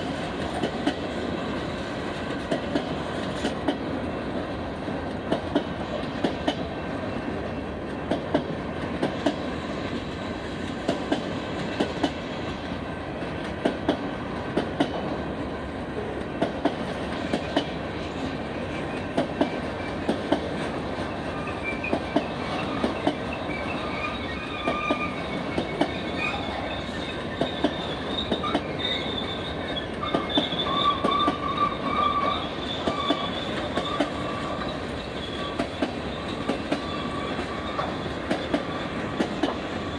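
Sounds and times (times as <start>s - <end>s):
train wheels clacking over rail joints: 0.0s - 15.3s, 16.0s - 39.9s
wheels squealing: 21.0s - 39.2s.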